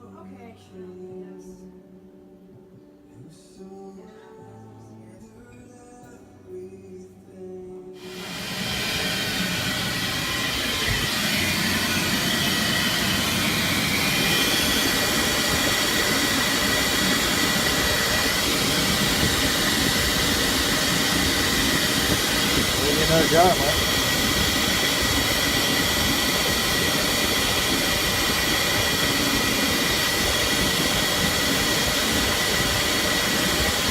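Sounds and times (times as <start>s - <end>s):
soft music: 0.0s - 8.3s
oil furnace burner roaring: 8.0s - 33.9s.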